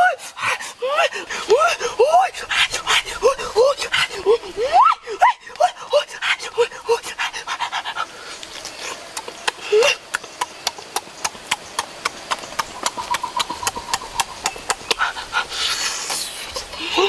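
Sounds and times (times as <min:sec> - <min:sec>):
open-mouth chewing and lip smacking: 0:06.2 - 0:16.4.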